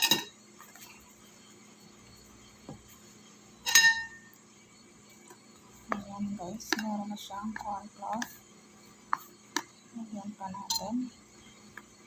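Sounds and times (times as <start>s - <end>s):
dish clinking: 3.7s - 4.2s.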